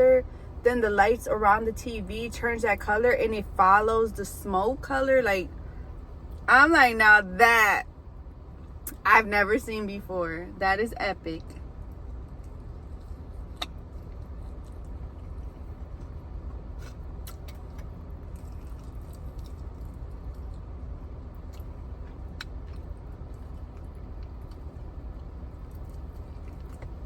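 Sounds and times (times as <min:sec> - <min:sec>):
low background hum: 0:00.0 - 0:27.0
person chewing food: 0:12.2 - 0:20.8, 0:21.4 - 0:27.0.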